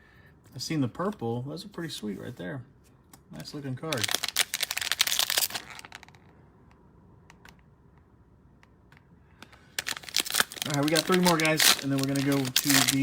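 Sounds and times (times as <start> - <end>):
plastic wrapping crinkling: 3.8 - 6.3, 9.5 - 13.0.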